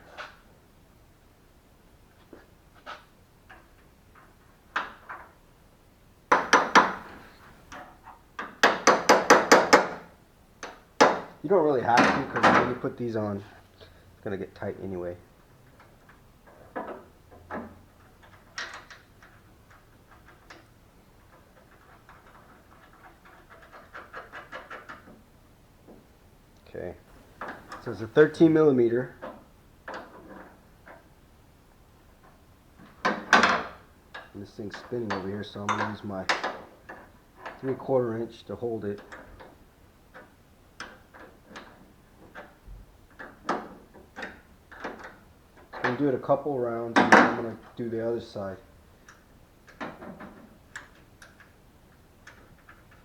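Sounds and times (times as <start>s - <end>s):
hand tools clicking and knocking: 6.3s - 7.8s, 27.1s - 28.2s.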